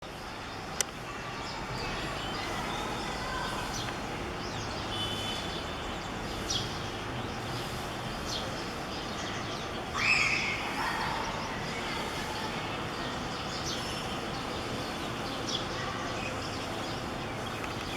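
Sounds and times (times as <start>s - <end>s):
steady background hiss: 6.0s - 17.9s.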